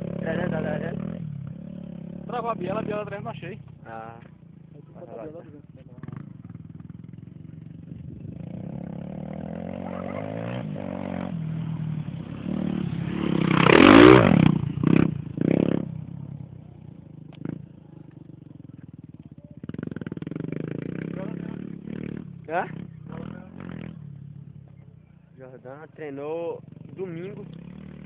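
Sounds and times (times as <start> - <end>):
motorcycle engine passing by: 0.0 - 28.0.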